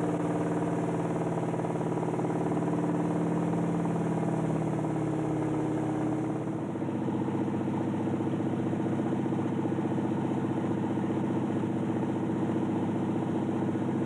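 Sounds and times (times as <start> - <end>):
floatplane engine and propeller: 0.0 - 14.0.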